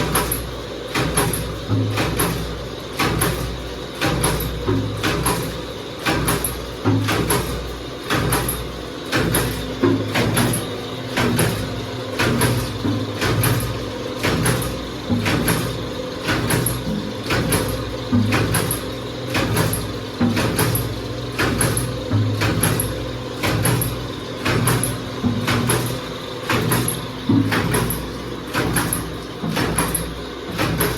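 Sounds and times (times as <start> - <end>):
machine press clacking: 0.1 - 30.9.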